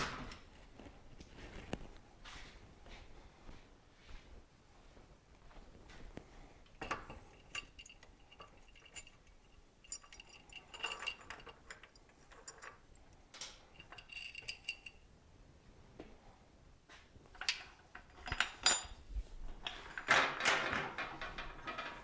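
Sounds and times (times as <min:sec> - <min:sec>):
metal tools and parts clinking: 0:06.6 - 0:15.0, 0:17.3 - 0:22.0.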